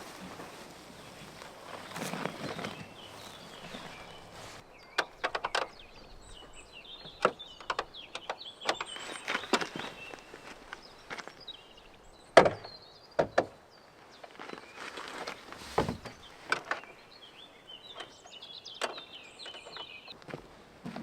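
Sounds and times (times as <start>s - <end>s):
birds chirping: 0.0s - 20.2s
sharp knocks and thumps: 15.6s - 16.6s.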